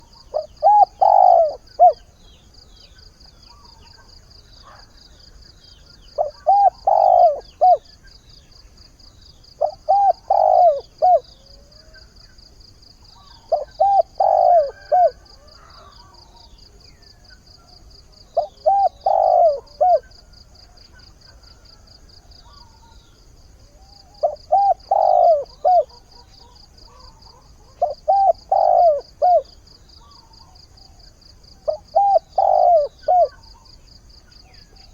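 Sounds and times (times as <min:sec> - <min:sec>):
dove cooing: 0:00.0 - 0:02.1, 0:06.1 - 0:07.9, 0:09.6 - 0:12.0, 0:13.2 - 0:16.8, 0:18.1 - 0:22.9, 0:23.7 - 0:34.9.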